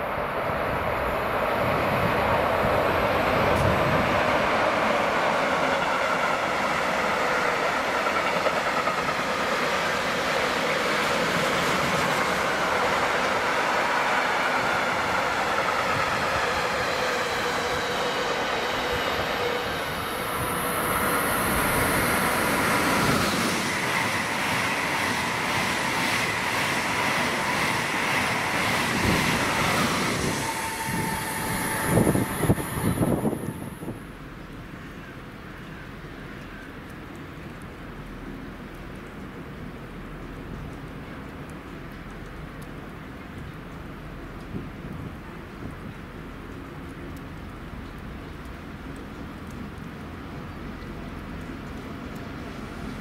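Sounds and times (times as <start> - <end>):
train wheels rumbling: 0.0 - 34.2.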